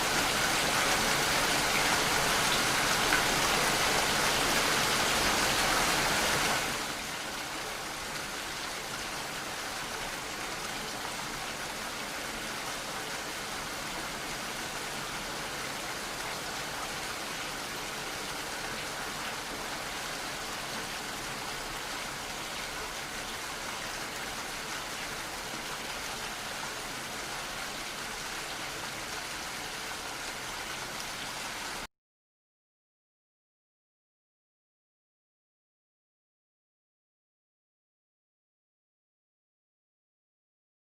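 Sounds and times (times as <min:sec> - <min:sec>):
steady rain hiss: 0:00.0 - 0:31.9.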